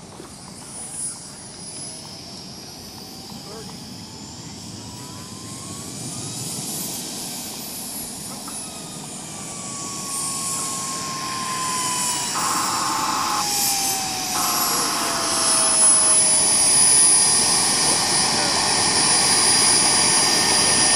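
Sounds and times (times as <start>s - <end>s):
model jet engine whine: 0.0s - 20.9s.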